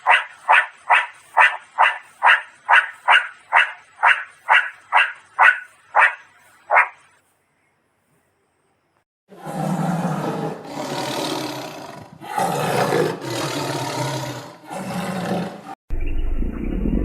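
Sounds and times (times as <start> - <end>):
large animal roaring: 9.3 - 15.8.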